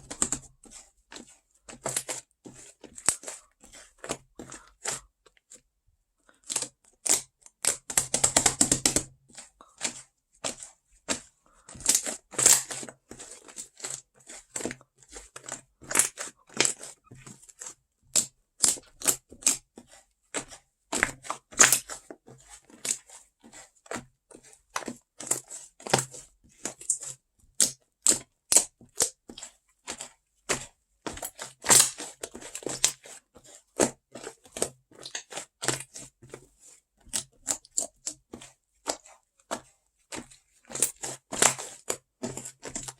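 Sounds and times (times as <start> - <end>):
slime squishing with sticky clicks: 25.3 - 33.0, 35.0 - 36.0.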